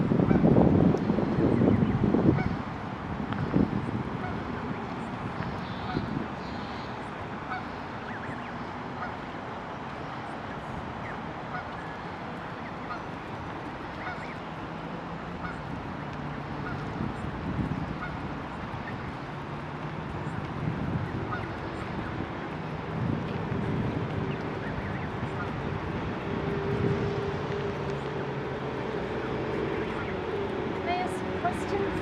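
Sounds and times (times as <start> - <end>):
geese honking: 2.3 - 2.6, 5.6 - 9.2, 11.0 - 14.4, 15.4 - 15.7, 16.6 - 17.0, 17.9 - 19.2, 21.1 - 22.2, 23.8 - 26.9, 28.9 - 32.0.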